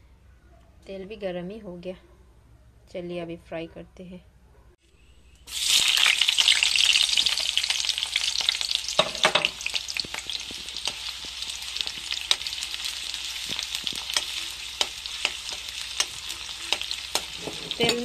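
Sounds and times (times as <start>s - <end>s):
onion sizzling in hot oil: 5.5s - 18.0s
steel spoon tapping a pan: 13.4s - 18.0s.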